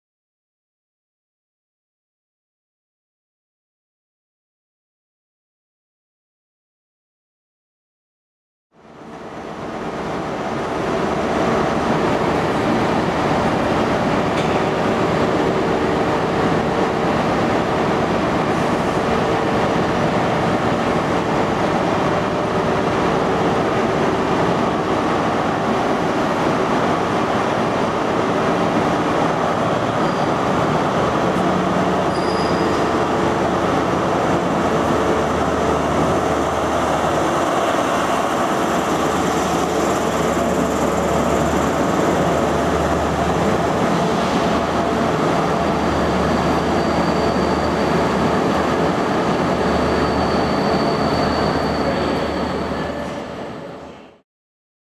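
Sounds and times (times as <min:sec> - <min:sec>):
train wheels on rail: 0:09.2 - 0:53.9
faint squeal-like tone: 0:32.1 - 0:33.0, 0:49.9 - 0:54.0.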